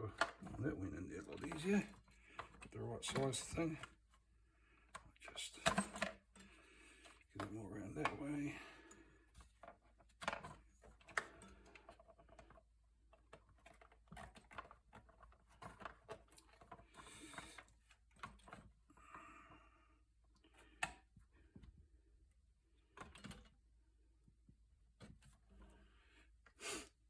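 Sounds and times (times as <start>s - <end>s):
hands handling hose fittings: 0.0s - 19.6s.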